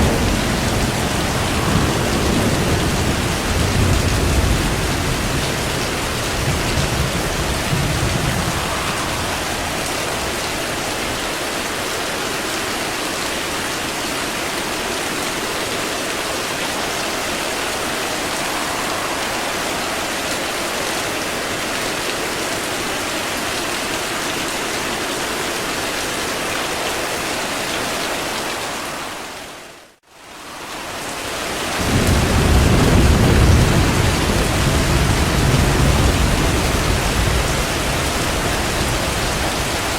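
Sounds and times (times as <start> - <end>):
low rolls of thunder: 0.0 - 11.4, 16.9 - 22.0, 31.1 - 39.9
heavy rain: 0.0 - 39.9.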